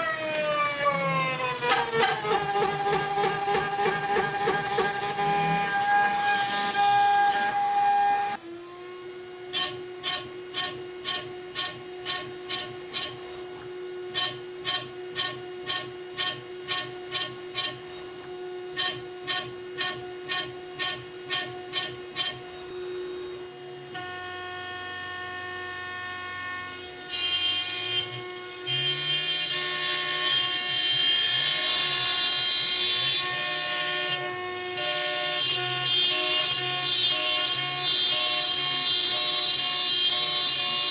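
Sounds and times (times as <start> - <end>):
end mill cutting wood: 0.0 - 8.6
router spindle whine: 0.0 - 40.9.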